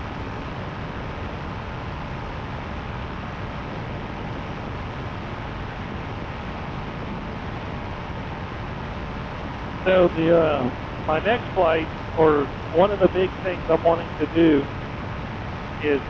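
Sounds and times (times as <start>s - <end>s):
paramotor engine droning: 0.0s - 16.0s.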